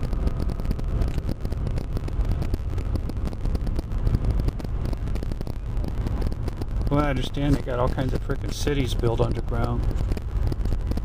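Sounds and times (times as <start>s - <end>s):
small irregular clicks: 0.0s - 11.0s
vehicle rumbling: 0.0s - 11.0s.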